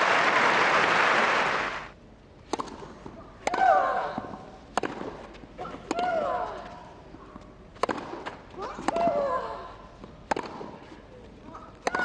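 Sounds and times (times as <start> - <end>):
crowd applause: 0.0 - 1.9
tennis racket striking ball: 4.7 - 6.2, 7.8 - 9.2, 10.2 - 10.8.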